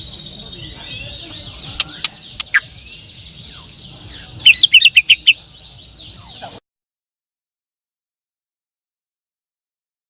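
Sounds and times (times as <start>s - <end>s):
songbirds singing: 0.0s - 6.6s
bird loud whistled phrases: 0.6s - 5.4s, 6.1s - 6.6s.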